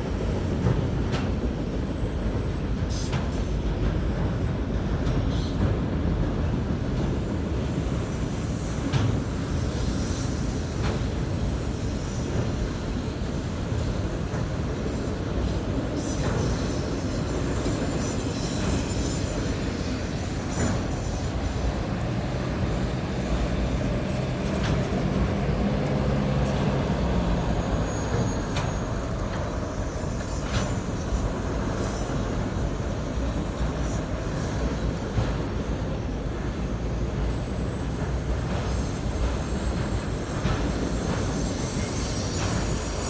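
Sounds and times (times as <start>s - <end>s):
train wheels rumbling on rail: 0.0s - 43.0s
short squeals and clanks: 38.2s - 43.0s.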